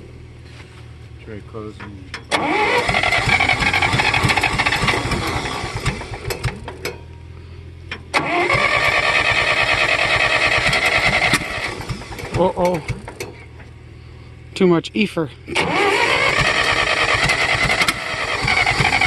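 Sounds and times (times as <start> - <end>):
tractor engine cranking: 1.8 - 7.2, 7.8 - 13.8, 15.4 - 19.0.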